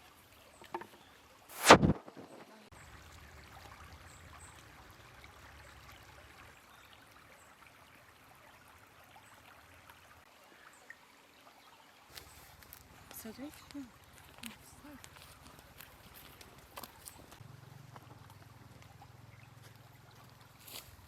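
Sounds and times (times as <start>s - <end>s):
faint river water flowing: 0.0s - 21.0s.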